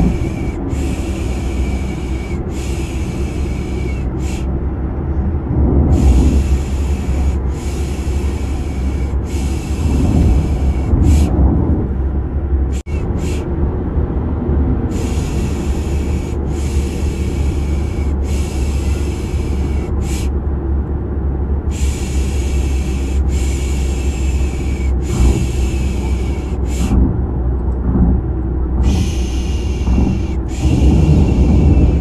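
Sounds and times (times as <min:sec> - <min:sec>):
low car rumble: 0:00.0 - 0:32.0
person shushing: 0:28.8 - 0:32.0.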